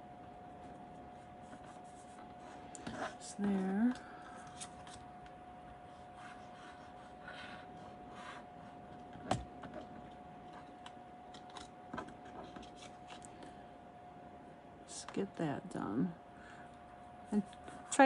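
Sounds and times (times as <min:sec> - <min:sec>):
faint steady hum: 0:00.0 - 0:18.0
cardstock rustling and rubbing: 0:09.8 - 0:13.2.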